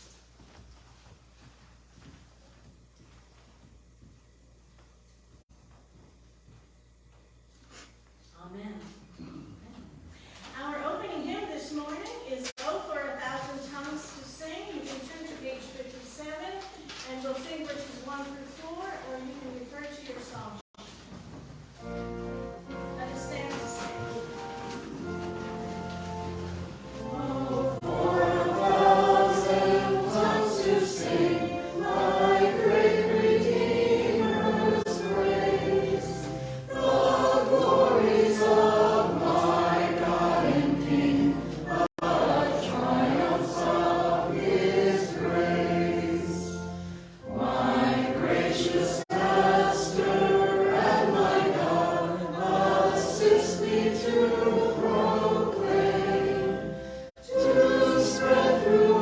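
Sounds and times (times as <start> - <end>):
choir singing a hymn: 21.8 - 59.0.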